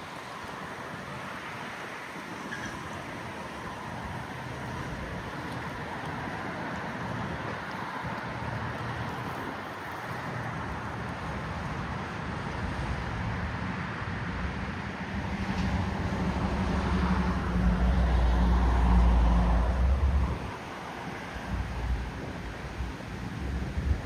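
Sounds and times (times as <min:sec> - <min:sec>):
city traffic: 0:00.0 - 0:24.0
wind on microphone: 0:15.2 - 0:24.0.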